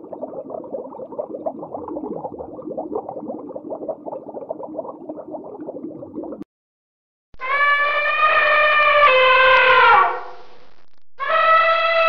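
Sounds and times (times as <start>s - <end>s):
dolphin falling whistle: 7.4s - 10.3s, 11.2s - 12.0s.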